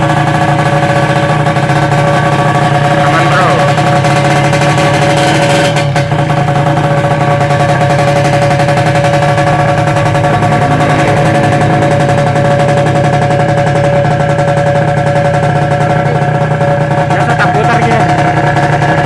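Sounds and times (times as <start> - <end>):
two-stroke engine idling: 0.0 - 19.0.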